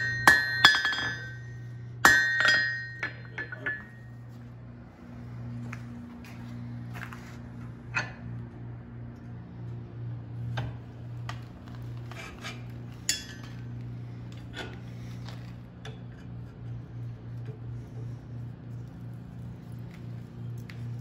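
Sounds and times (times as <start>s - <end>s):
metal tools clinking: 0.0s - 4.2s, 12.4s - 13.7s
steady low hum: 0.0s - 21.0s.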